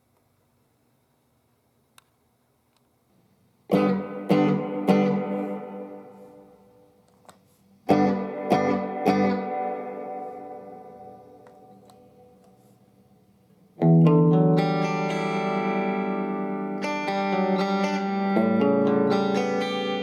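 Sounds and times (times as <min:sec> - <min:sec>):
electric guitar chords strummed: 0:03.7 - 0:06.7, 0:07.9 - 0:12.4, 0:13.8 - 0:20.0.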